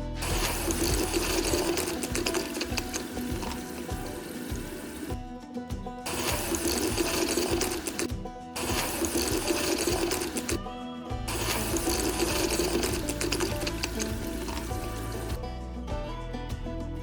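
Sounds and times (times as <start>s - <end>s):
background music: 0.0s - 17.0s
small electric motor whirring: 0.2s - 5.1s, 6.1s - 10.6s, 11.3s - 15.4s.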